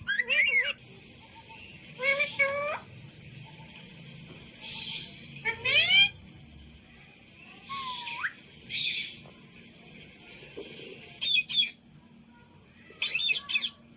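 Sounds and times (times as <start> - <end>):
parrot shrill calls: 0.0 - 0.8, 5.4 - 6.1, 7.7 - 9.1, 13.0 - 13.8
parrot squawk: 0.0 - 0.8, 4.8 - 6.2, 13.0 - 13.8
parrot whistle: 7.7 - 9.0.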